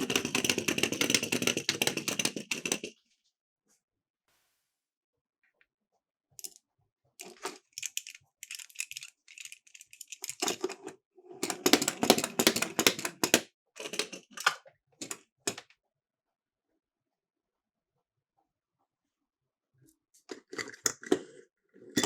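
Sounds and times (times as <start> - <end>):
toy cars rattling down a slope: 7.2 - 10.6.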